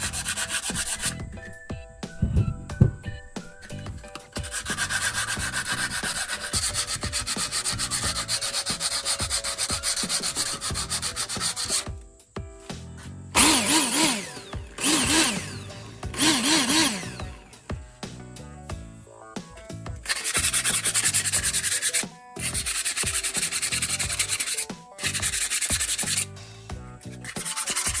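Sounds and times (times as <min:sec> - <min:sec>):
rapid scraping strokes: 0:00.0 - 0:11.9, 0:20.1 - 0:26.4, 0:27.0 - 0:28.0.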